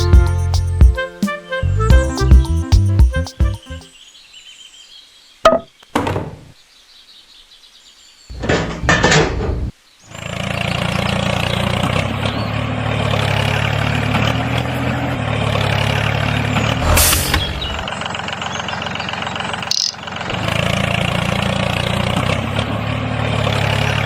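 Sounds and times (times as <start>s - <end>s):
engine running: 12.8s - 24.0s
burst of noise: 16.8s - 17.9s.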